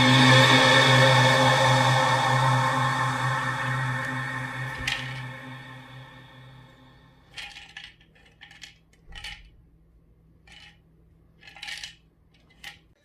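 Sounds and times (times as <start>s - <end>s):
treat toy rattling: 7.3s - 9.5s, 10.5s - 10.8s, 11.4s - 12.9s.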